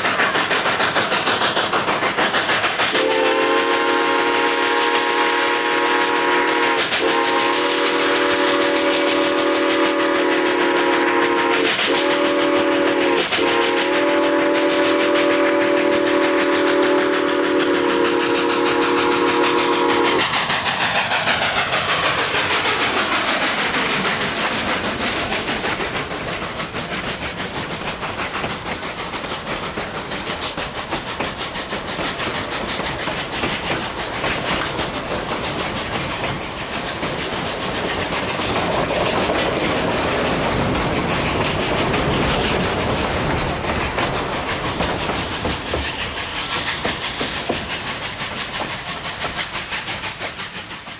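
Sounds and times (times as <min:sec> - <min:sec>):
train wheels clattering: 0:00.0 - 0:50.9
steam locomotive chime whistle: 0:02.9 - 0:20.2.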